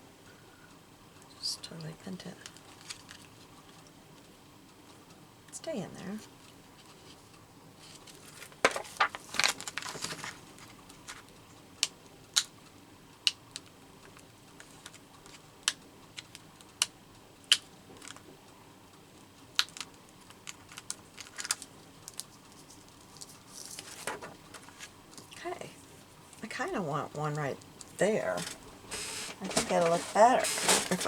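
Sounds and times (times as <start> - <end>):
paper rustling: 7.8 - 11.3, 20.4 - 25.3, 28.2 - 31.0.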